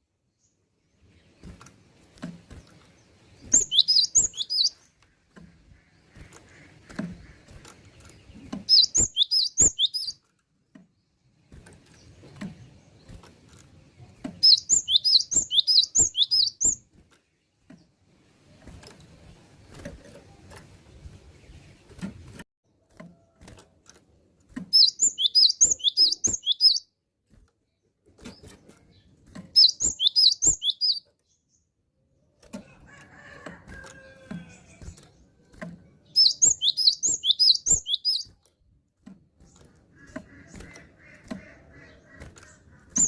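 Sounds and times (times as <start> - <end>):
bird singing high repeated notes: 3.3 - 4.9, 8.6 - 10.2, 14.4 - 16.8, 24.8 - 26.9, 29.6 - 31.1, 36.0 - 38.3.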